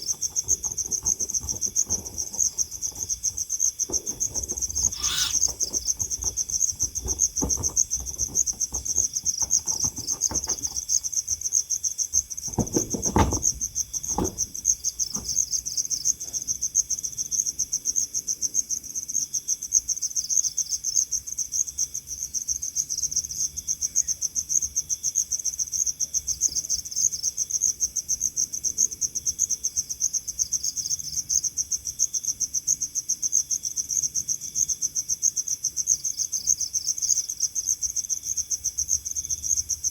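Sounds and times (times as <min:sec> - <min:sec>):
soft thuds or rustles: 0:00.0 - 0:11.2, 0:12.2 - 0:15.5
insects trilling: 0:00.0 - 0:39.9.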